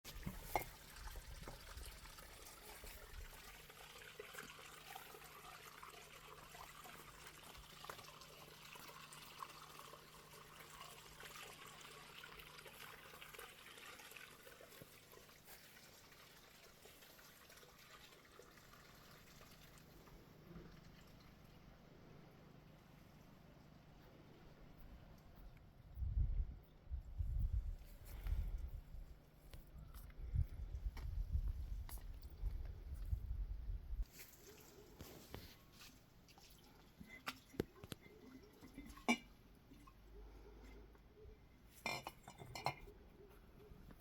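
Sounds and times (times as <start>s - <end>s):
faint trickling water: 0.1s - 44.0s.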